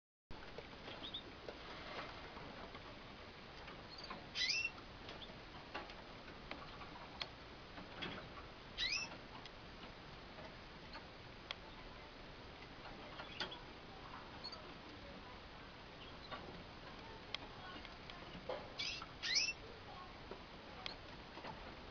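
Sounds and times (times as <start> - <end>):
cockatiel calls: 3.9 - 4.7, 8.8 - 9.1, 18.8 - 19.6
light clicks and taps: 16.2 - 18.7.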